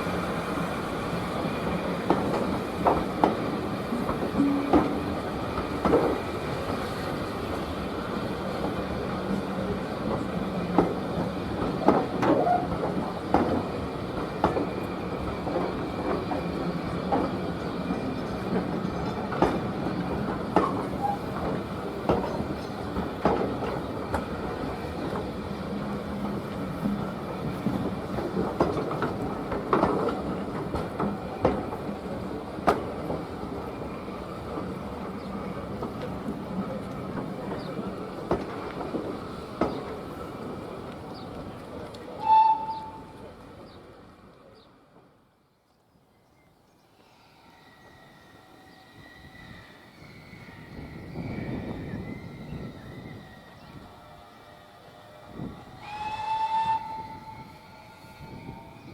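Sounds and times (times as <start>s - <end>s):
train rumble: 0.0s - 45.3s
train wheels clicking over rail joints: 0.1s - 43.2s.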